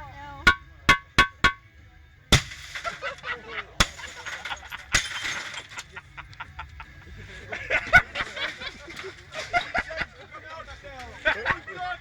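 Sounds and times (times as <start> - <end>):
glass smashing: 0.5 - 1.7, 2.3 - 6.0
glass debris tinkling: 2.3 - 6.2.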